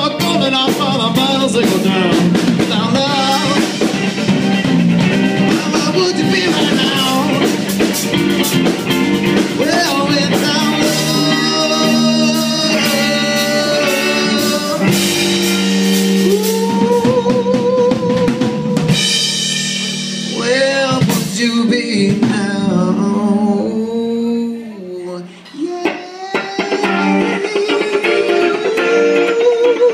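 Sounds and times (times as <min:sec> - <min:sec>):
drum kit beat: 0:00.0 - 0:24.1, 0:25.6 - 0:29.9
guitar: 0:00.0 - 0:29.9
person singing long wavering notes: 0:09.9 - 0:15.2.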